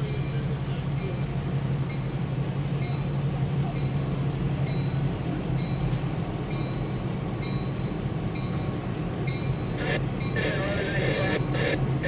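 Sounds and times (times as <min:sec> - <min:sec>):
diesel locomotive rumbling: 0:00.0 - 0:12.0
crossing bell dinging: 0:02.8 - 0:11.9.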